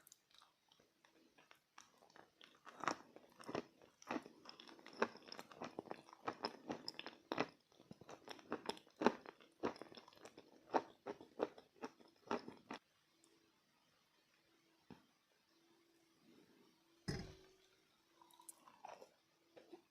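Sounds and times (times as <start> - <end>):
crunching and chewing chalk: 0.0 - 12.8.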